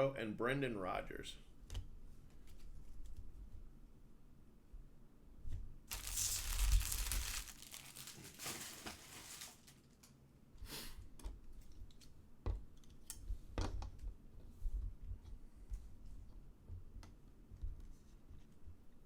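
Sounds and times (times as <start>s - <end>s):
packaging ripping: 5.9s - 10.0s
packaging crinkling: 5.9s - 10.1s.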